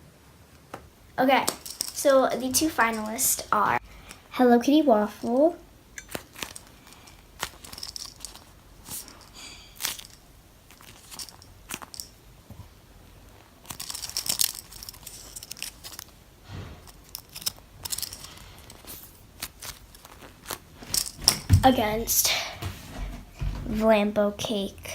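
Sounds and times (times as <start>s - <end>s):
foam toys squeezed rustling: 6.0s - 21.3s.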